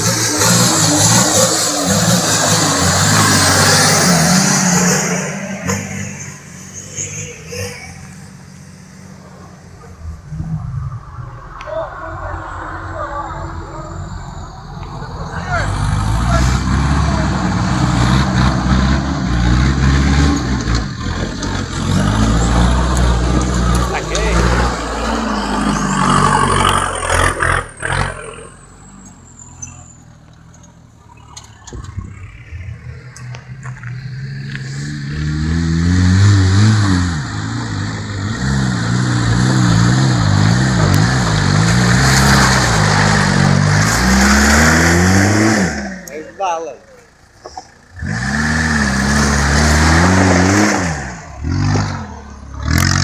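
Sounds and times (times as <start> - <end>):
engine revving hard: 0.0 - 8.3, 9.9 - 28.6, 31.8 - 46.6, 47.9 - 53.0
vehicle engine running: 30.0 - 53.0.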